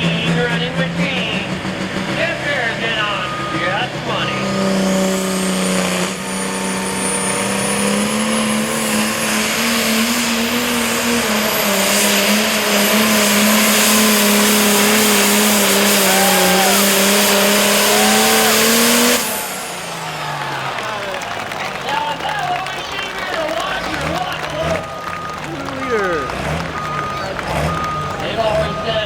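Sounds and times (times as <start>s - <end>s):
diesel tractor engine at full throttle: 0.0s - 29.0s
high turbo whistle: 11.2s - 20.7s.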